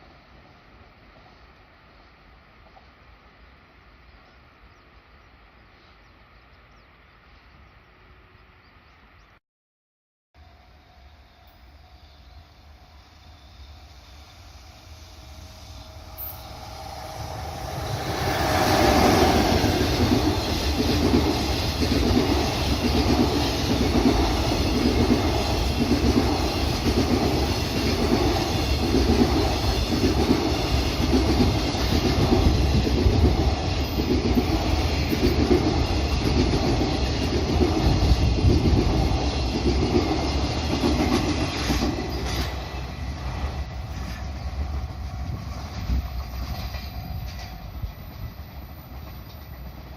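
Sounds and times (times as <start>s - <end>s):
freight train passing: 10.4s - 49.9s.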